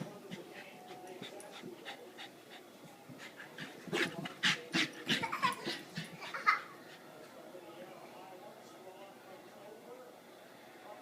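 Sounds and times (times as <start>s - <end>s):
dog panting: 0.0s - 7.1s.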